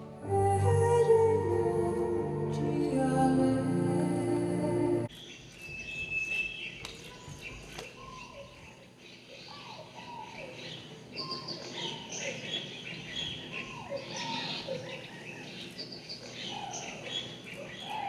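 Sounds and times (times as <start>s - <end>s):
birds chirping and calling: 5.1s - 18.0s.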